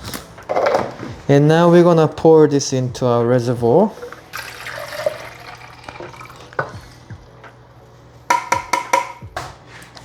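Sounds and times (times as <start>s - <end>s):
liquid pouring into reservoir: 4.0s - 6.8s.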